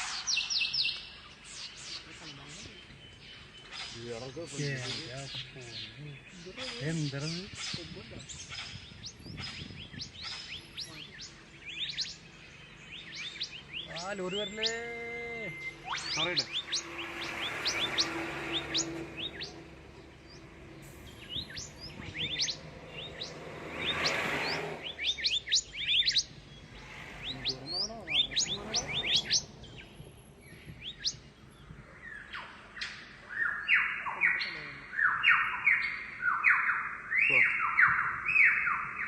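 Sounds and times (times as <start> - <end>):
quick high bird chirps: 12.8 - 19.6, 20.2 - 31.3
sliding whistled bird notes: 12.8 - 31.3
low hum: 14.7 - 33.4.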